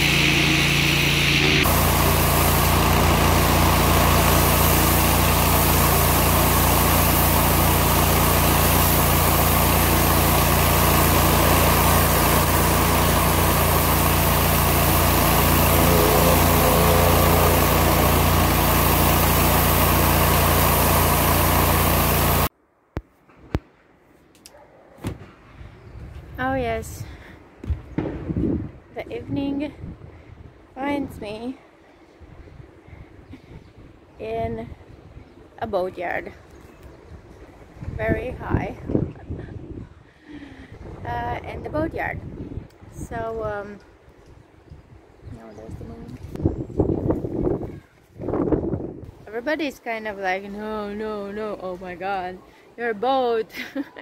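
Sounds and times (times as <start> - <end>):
engine running steadily: 0.0 - 22.5.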